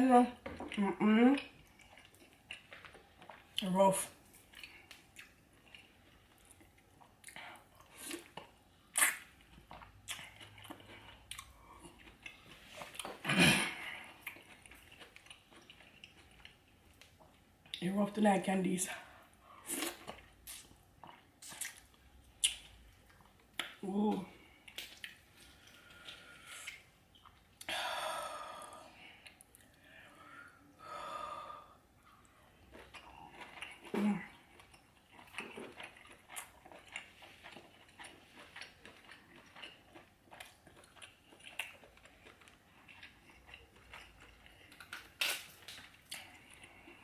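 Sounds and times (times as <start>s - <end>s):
close-miked chewing: 0.5s - 17.8s, 19.4s - 23.8s, 32.0s - 47.0s
breathy mouth sounds while eating: 24.3s - 36.1s.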